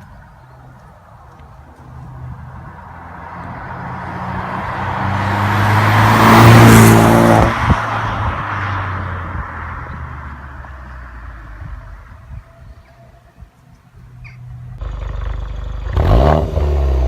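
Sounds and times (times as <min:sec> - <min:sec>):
car passing by under throttle: 0:01.9 - 0:11.4.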